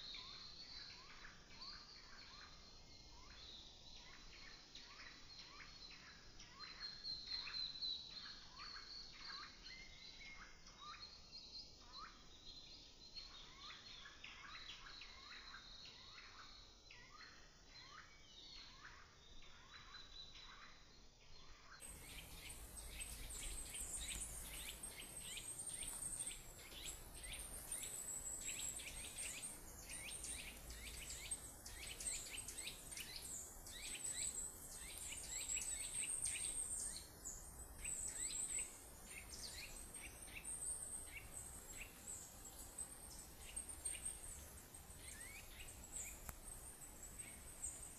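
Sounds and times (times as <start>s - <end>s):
birds chirping: 21.8s - 47.9s.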